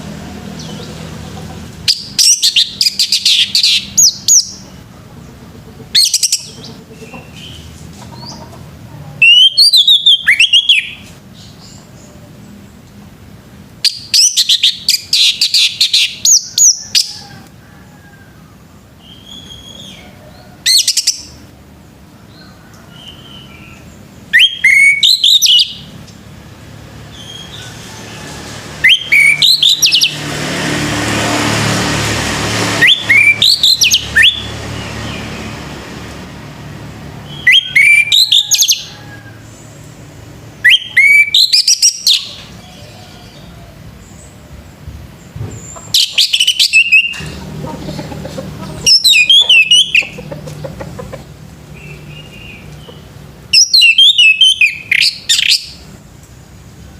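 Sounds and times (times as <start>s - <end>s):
broad rush of noise: 0.0s - 14.1s, 14.7s - 53.5s
thrush singing whistled notes: 1.8s - 4.8s, 9.2s - 11.1s, 13.8s - 17.1s, 19.0s - 20.1s, 23.0s - 25.9s, 28.8s - 30.2s, 32.7s - 35.4s, 37.2s - 39.0s, 40.5s - 43.5s, 45.6s - 47.4s, 48.8s - 50.3s, 51.7s - 55.9s.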